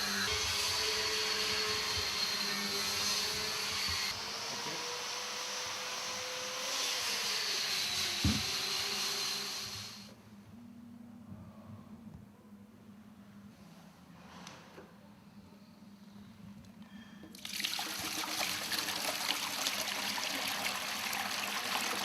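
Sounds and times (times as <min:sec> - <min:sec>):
industrial vacuum whining: 0:00.0 - 0:10.2.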